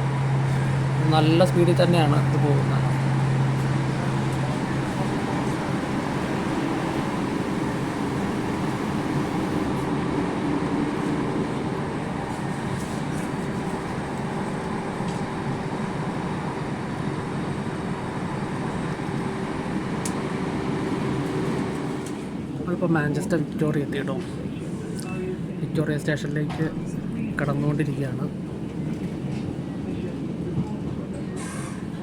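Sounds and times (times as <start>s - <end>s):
train wheels on rails rumble: 0.0s - 22.7s
faint steady hum: 4.0s - 9.7s.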